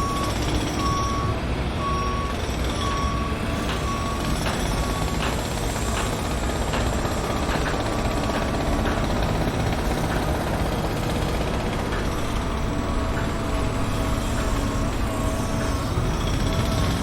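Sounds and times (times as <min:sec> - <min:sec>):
heavy machinery low rumble: 0:08.1 - 0:17.0.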